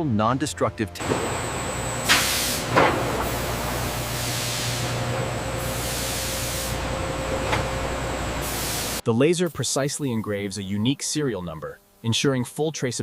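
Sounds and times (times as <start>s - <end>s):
low machine hum: 1.0s - 9.0s
spraying hiss: 2.0s - 5.0s, 5.6s - 6.8s, 8.4s - 10.4s.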